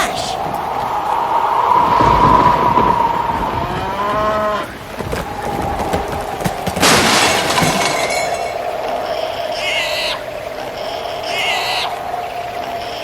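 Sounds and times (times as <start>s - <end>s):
loud crash: 6.7s - 8.6s.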